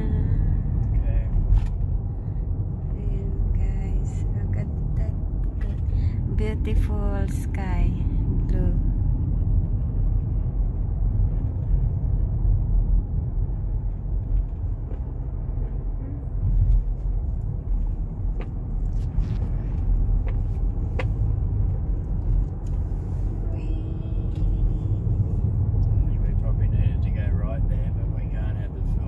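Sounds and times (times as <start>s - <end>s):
car engine and tyre rumble: 0.0s - 29.0s.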